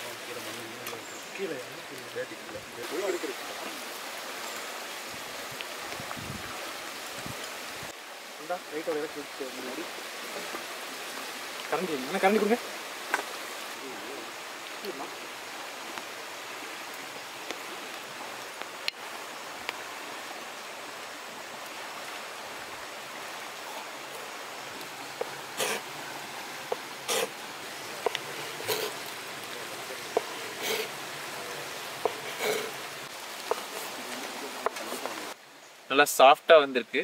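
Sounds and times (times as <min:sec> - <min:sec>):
rain hissing: 0:00.0 - 0:37.0
ladle scraping pot: 0:25.2 - 0:25.9, 0:26.7 - 0:31.4, 0:32.0 - 0:32.8.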